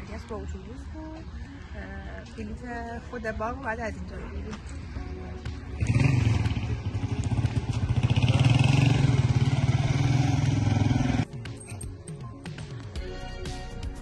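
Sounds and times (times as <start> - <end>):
vehicle engine running: 4.4 - 11.3.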